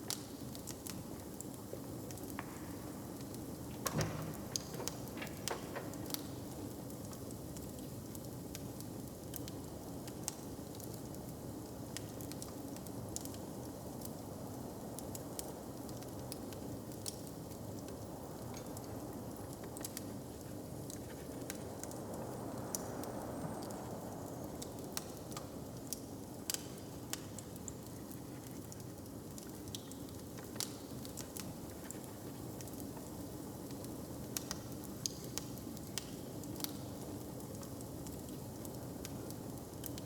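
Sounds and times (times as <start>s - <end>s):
fire popping and snapping: 0.0s - 11.2s, 14.9s - 40.0s
wood fire crackling: 0.0s - 40.0s
low fire rumble: 0.6s - 8.7s.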